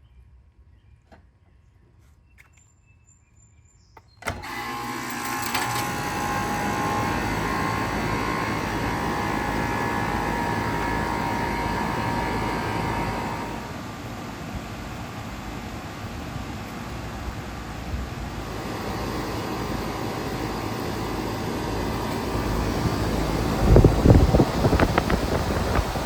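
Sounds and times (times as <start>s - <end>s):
fan noise: 4.2s - 26.0s
compressor hum: 4.3s - 26.0s.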